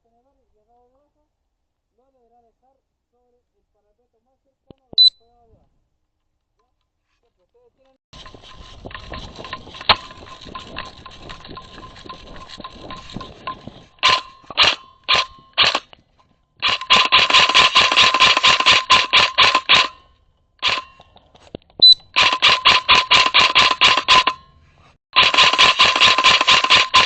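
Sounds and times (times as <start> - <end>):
airsoft gun firing: 16.6 - 20.0, 22.2 - 24.4, 25.2 - 27.0
distant firing clicks: 16.6 - 20.0, 22.1 - 24.4, 25.2 - 27.0.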